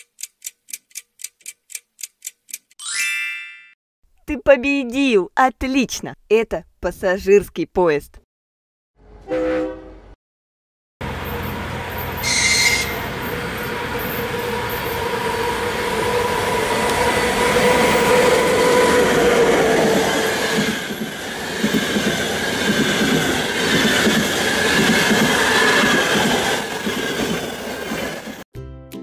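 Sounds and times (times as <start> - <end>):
train rumble: 11.0 - 28.4
faint high squeal: 12.2 - 13.1.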